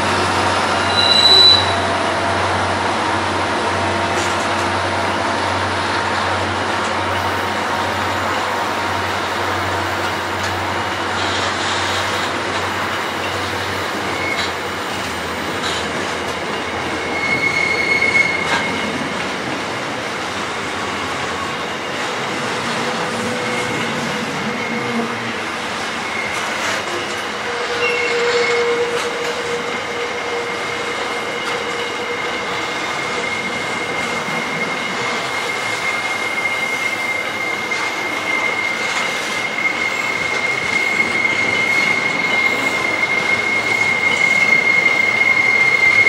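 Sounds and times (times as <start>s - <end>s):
freight train wheels rumbling on rails: 0.0s - 46.0s
high thin wheel squeal: 0.8s - 1.9s, 13.1s - 15.8s, 16.8s - 19.0s, 21.2s - 46.0s.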